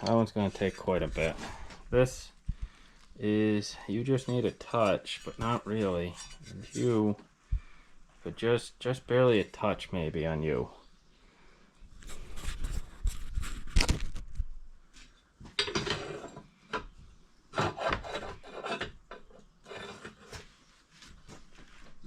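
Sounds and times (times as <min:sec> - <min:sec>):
hand file scraping steel blade: 0:17.6 - 0:20.5.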